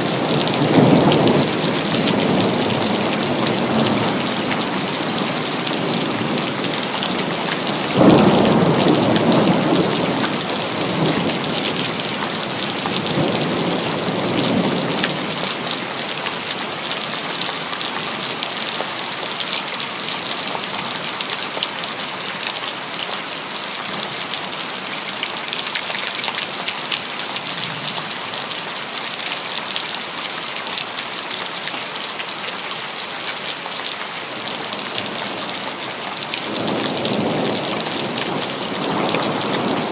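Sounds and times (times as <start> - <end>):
rain on hard surfaces: 0.0 - 39.9
thunder clap rumbling: 0.1 - 15.4.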